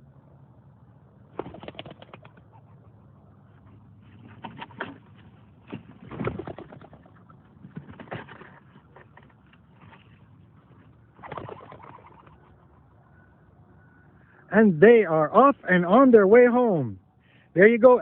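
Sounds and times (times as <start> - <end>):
pigeon wings fluttering: 1.3 - 2.6, 5.6 - 8.7, 11.2 - 12.4
pigeons cooing: 1.4 - 5.2, 6.0 - 8.5, 11.1 - 14.1.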